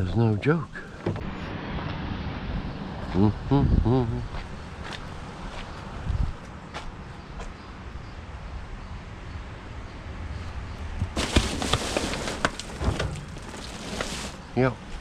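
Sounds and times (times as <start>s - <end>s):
outdoor background noise: 0.0s - 15.0s
junk rustling and clattering: 0.9s - 1.4s, 11.0s - 15.0s.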